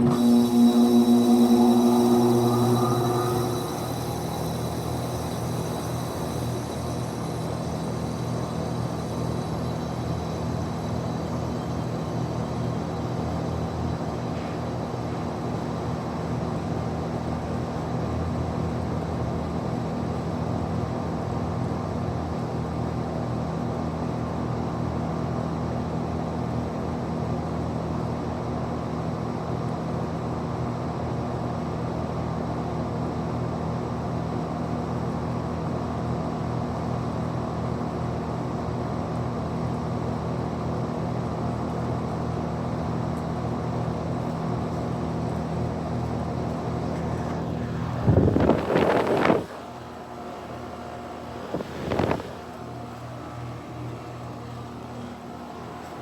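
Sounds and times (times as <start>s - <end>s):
heat pump humming: 0.0s - 15.7s, 43.6s - 56.0s.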